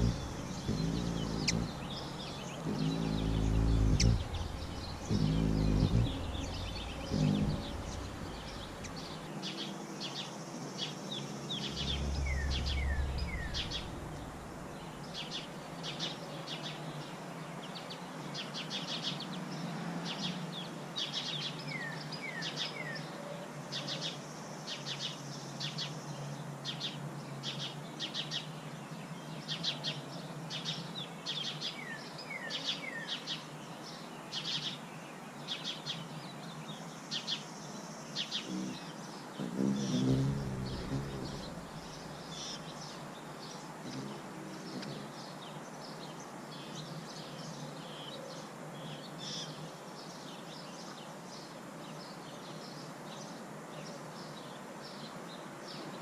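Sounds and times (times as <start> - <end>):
low rumble: 0.0 - 9.3, 11.4 - 15.4, 40.1 - 42.2
birds chirping: 0.0 - 9.7, 10.8 - 16.0, 38.2 - 47.6.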